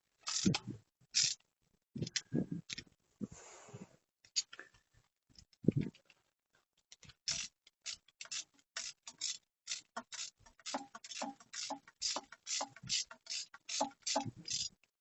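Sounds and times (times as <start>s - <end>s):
ratchet wrench clicking: 0.2s - 0.6s, 1.2s - 1.4s, 7.3s - 14.8s.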